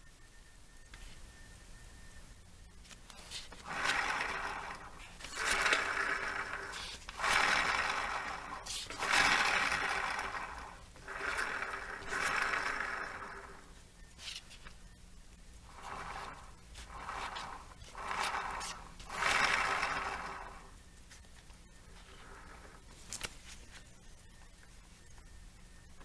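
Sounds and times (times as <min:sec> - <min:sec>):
scooter wheel grinding rumble: 0:02.9 - 0:14.8, 0:15.5 - 0:23.8.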